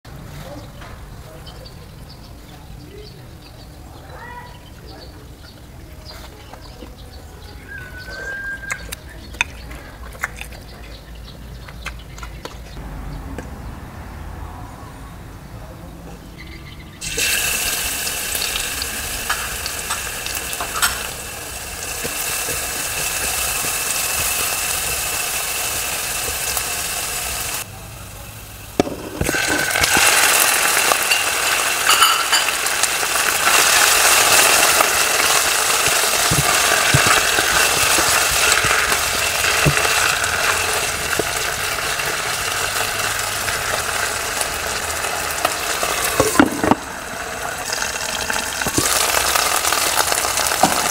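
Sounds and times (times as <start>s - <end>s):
spatula clicking and scraping: 8.7s - 12.8s
chicken frying in oil: 17.0s - 50.9s
oil sizzling in a pan: 17.0s - 50.9s.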